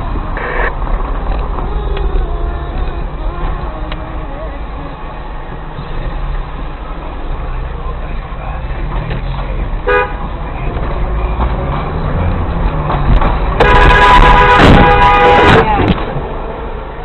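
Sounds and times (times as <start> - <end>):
car rumbling on road: 0.0 - 17.0
car horn toot: 0.4 - 0.7, 9.8 - 10.3, 13.6 - 15.9
loud held tones: 0.4 - 0.7.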